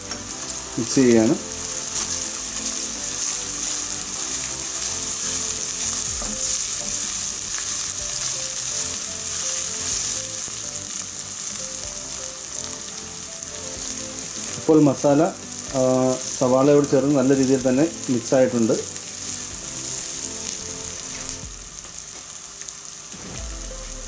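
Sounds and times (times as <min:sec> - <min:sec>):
onions sizzling in hot oil: 0:00.0 - 0:24.0
wooden spatula stirring: 0:00.1 - 0:11.6.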